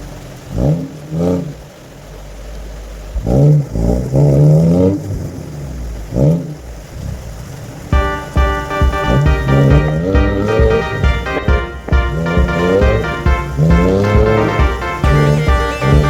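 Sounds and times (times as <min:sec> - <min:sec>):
car engine revving: 0:00.0 - 0:16.0
music: 0:07.9 - 0:16.0.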